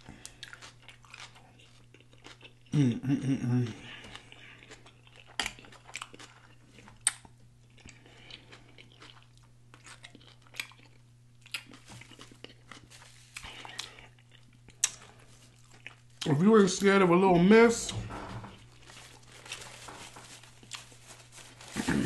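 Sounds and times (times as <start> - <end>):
faint low hum: 0.0 - 22.0
wet chewing and lip smacking: 0.2 - 2.8, 4.1 - 16.3.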